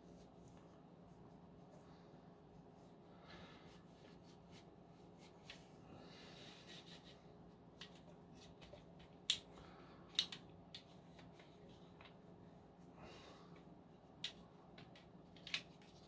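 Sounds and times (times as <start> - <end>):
faint handling noise: 6.5 - 12.9.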